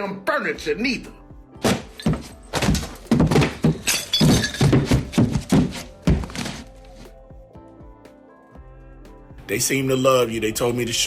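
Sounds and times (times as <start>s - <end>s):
background music: 0.0s - 11.0s
thuds and knocks: 1.6s - 6.6s.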